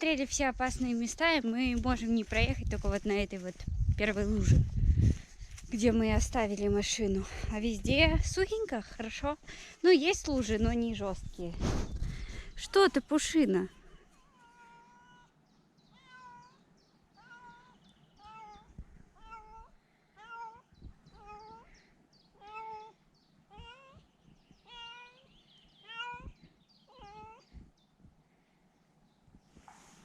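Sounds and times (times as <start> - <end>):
cat meowing: 14.2 - 15.3, 15.9 - 16.6, 17.2 - 21.7, 23.5 - 24.0, 24.7 - 25.2, 25.8 - 27.4.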